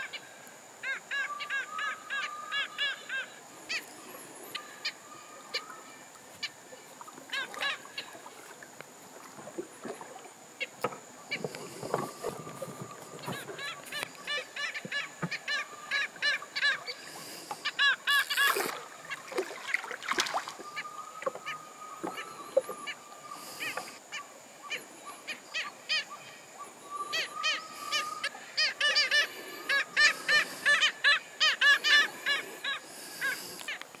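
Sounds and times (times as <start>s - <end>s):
birds honking squawks: 11.3s - 19.9s, 26.8s - 33.8s.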